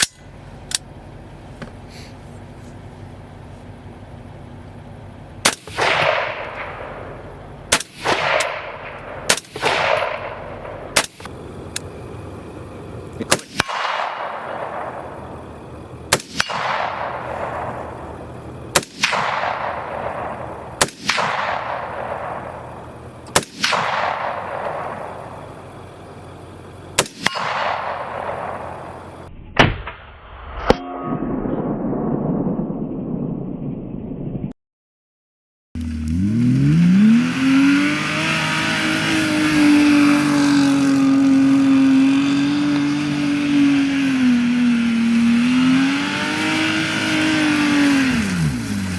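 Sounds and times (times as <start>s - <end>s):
dull muffled noise: 0.0s - 34.6s
gunshots echoing: 5.4s - 11.3s, 13.2s - 15.5s, 16.1s - 25.4s, 27.0s - 30.1s.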